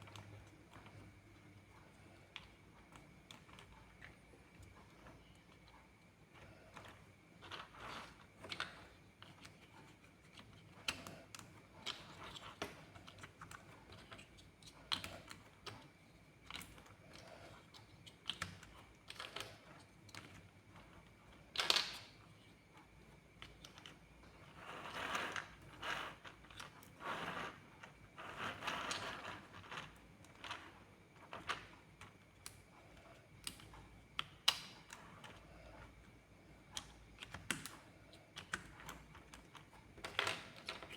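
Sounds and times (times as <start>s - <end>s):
plastic blocks clicking together: 21.5s - 22.1s, 38.4s - 40.9s.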